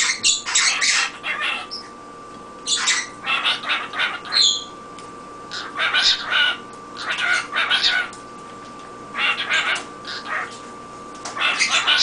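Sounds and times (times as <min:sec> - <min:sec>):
cockatiel high chirp: 0:02.7 - 0:04.7.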